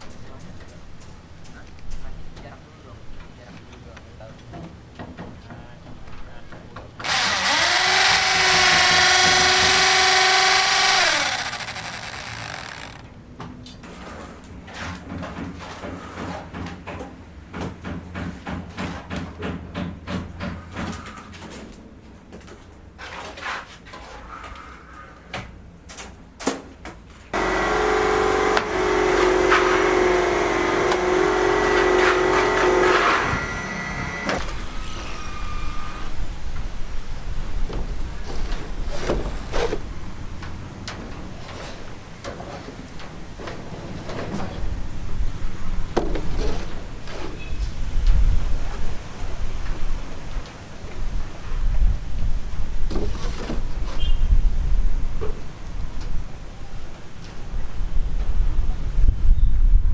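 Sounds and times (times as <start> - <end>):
power tool whining: 7.0 - 13.1, 27.4 - 36.1.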